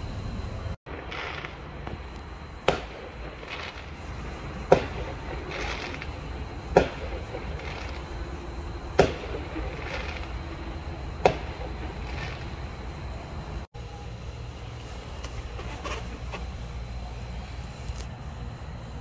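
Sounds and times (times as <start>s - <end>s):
low rumble: 0.0s - 13.7s
fireworks bangs: 0.9s - 13.7s.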